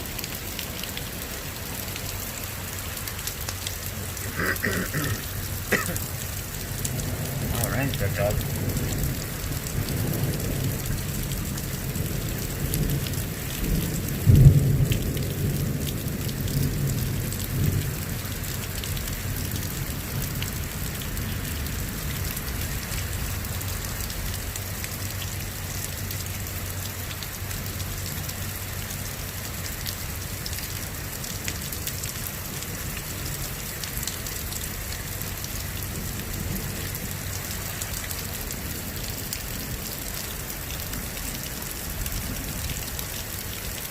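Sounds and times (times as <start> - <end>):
rain falling: 0.0 - 43.9
thunder rumbling: 6.9 - 17.8.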